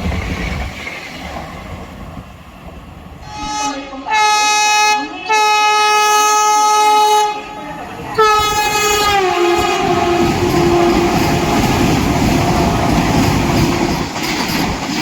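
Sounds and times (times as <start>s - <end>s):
train rushing past: 0.0s - 15.0s
train horn blasts: 3.2s - 11.8s.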